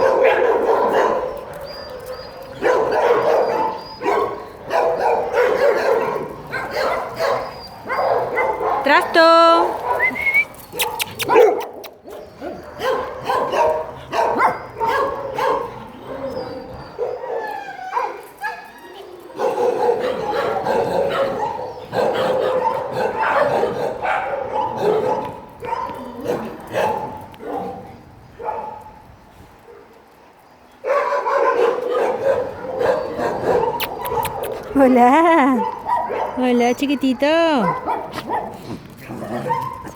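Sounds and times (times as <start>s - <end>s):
dog barking and yipping: 0.0s - 27.8s, 28.4s - 28.8s, 30.8s - 39.9s
dog whining: 1.4s - 4.6s, 7.2s - 8.3s, 9.9s - 11.6s, 16.0s - 19.4s, 32.6s - 38.3s.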